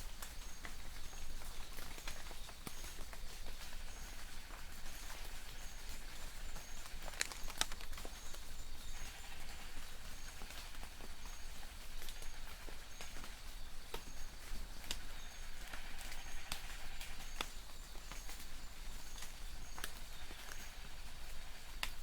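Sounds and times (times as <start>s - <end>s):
drops pattering on leaves: 0.0s - 22.0s
light rain in a forest: 0.0s - 22.0s.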